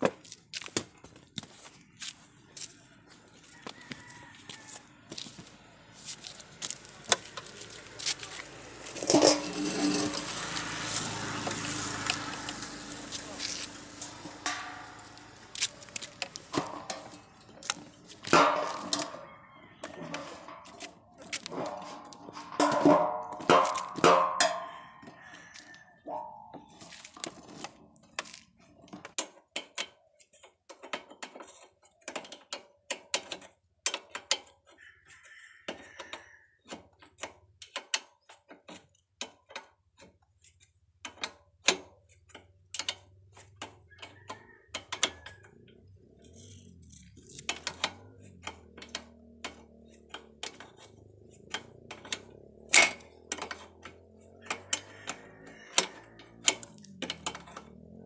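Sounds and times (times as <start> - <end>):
clicks and taps on metal: 26.2 - 34.6, 35.7 - 46.4, 47.1 - 57.8.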